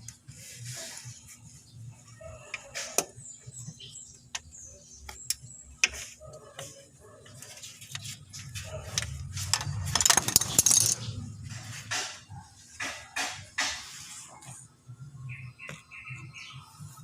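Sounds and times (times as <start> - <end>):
metal tools clinking: 9.0 - 11.2.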